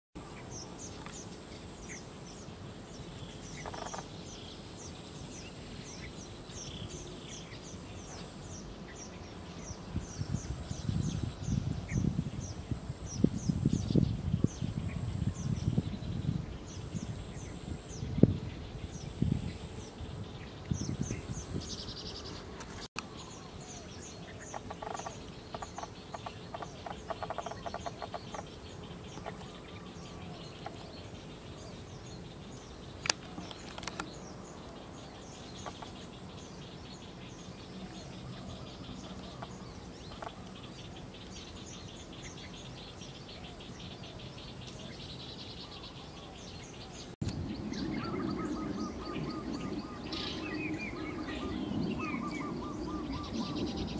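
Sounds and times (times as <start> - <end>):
outdoor background noise: 0.2 - 53.9
small birds chirping: 0.2 - 53.9.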